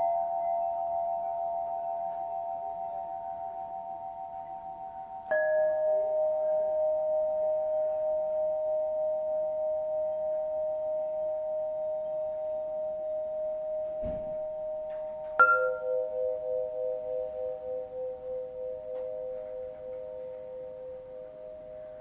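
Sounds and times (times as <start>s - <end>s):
singing bowls ringing: 0.0s - 22.0s
singing bowl struck: 5.3s - 22.0s.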